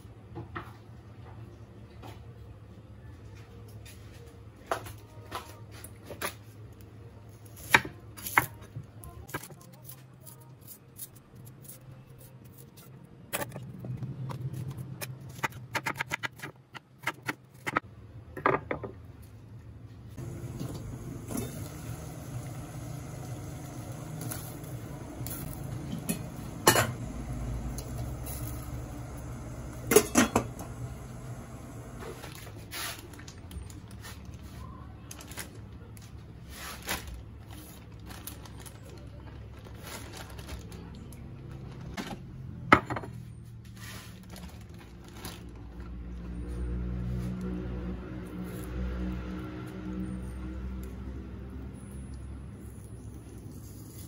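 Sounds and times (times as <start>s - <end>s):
low background hum: 0.0s - 46.5s
dishes and pots clinking: 25.9s - 27.0s, 29.8s - 30.8s.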